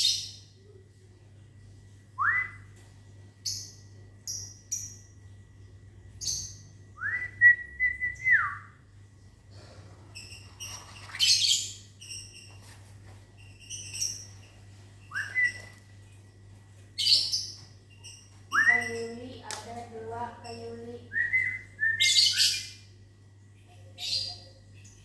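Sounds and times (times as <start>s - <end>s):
lovebirds chirping: 10.1s - 16.2s.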